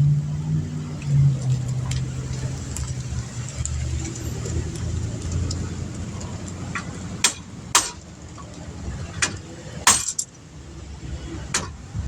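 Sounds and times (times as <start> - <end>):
hammer striking metal: 7.2 - 8.0, 9.2 - 10.3.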